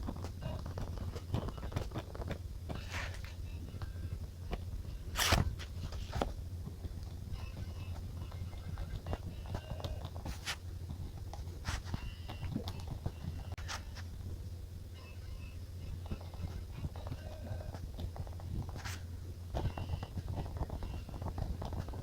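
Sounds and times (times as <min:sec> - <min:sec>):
low steady hum: 0:00.0 - 0:22.0
paper rustling: 0:05.2 - 0:06.3, 0:10.2 - 0:10.6, 0:11.4 - 0:12.0.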